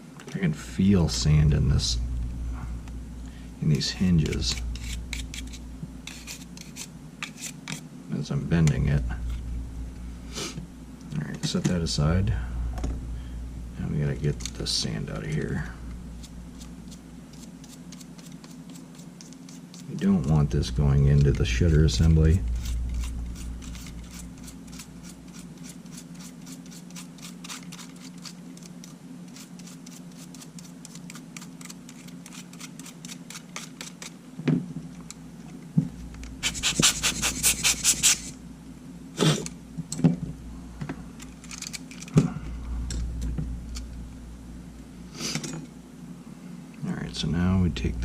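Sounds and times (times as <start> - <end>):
toothbrush scrubbing: 4.3 - 7.8, 16.2 - 20.4, 21.6 - 28.7, 29.3 - 34.1, 36.4 - 38.3.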